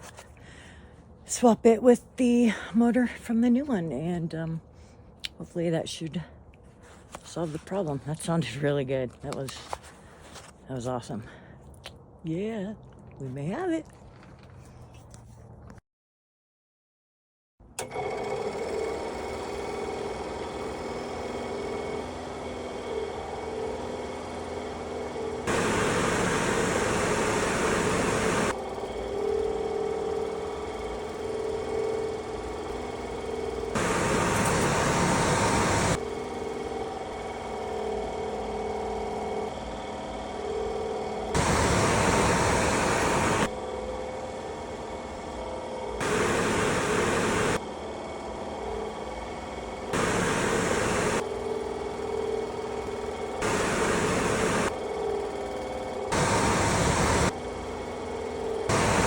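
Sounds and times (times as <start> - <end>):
motor humming steadily: 17.8 - 59.0.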